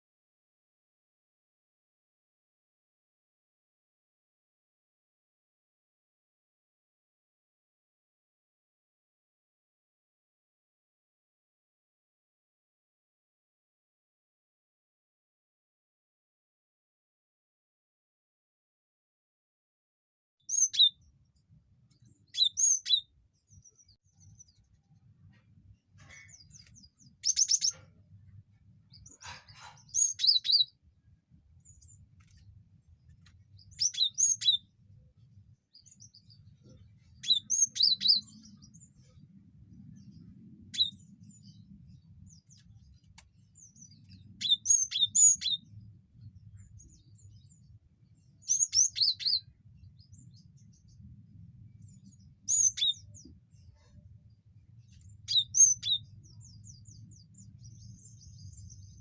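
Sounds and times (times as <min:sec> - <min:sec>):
bird chirping: 0:20.5 - 0:59.0.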